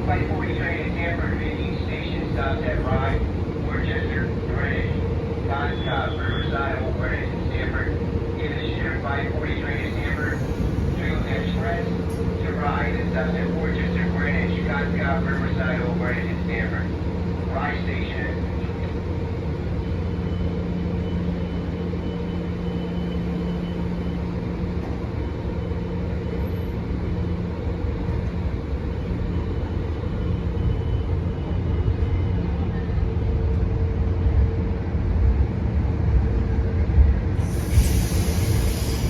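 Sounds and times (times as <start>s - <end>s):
train rumbling at station: 0.0s - 39.0s
loud hiss: 37.4s - 39.0s.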